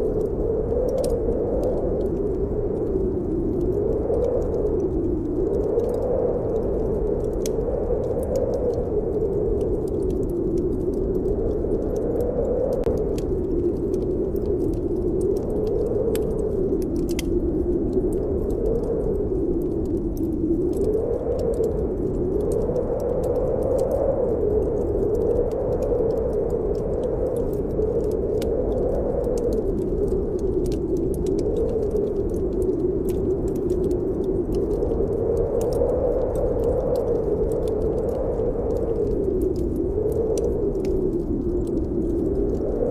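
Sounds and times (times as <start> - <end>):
wind howling: 0.0 - 42.9
wood fire crackling: 0.0 - 42.9.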